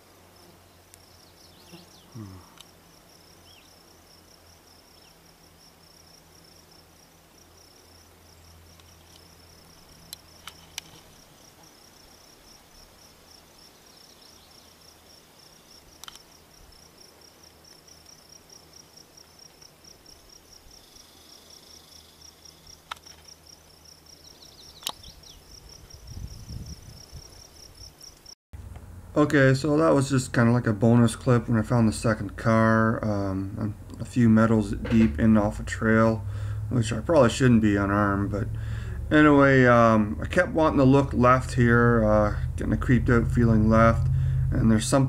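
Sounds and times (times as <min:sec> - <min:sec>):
crickets chirping: 0:00.0 - 0:28.4, 0:31.5 - 0:45.0
sharp clicks: 0:22.9 - 0:23.3, 0:24.8 - 0:25.0
low rumble: 0:31.1 - 0:45.0.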